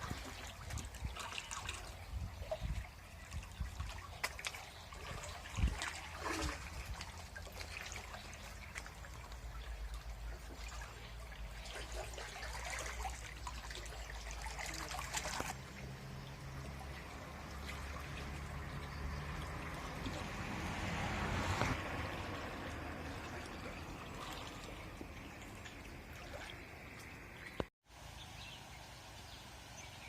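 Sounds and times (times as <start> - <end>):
wind rumble on microphone: 0.0 - 4.2, 5.0 - 7.1
water trickling: 0.0 - 30.0.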